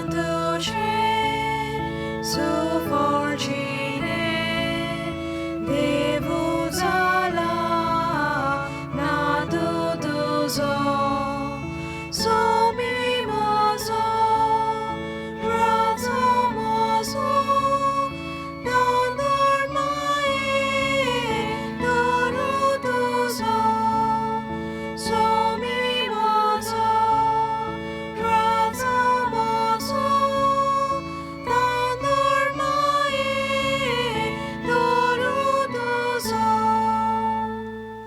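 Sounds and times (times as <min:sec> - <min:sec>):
church hymn singing: 0:00.0 - 0:38.0
instrumental accompaniment: 0:00.0 - 0:38.0.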